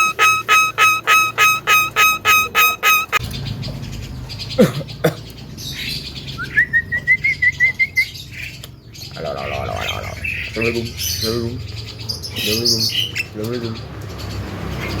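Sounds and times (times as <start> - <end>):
myna calling: 0.0 - 3.2, 9.0 - 10.7.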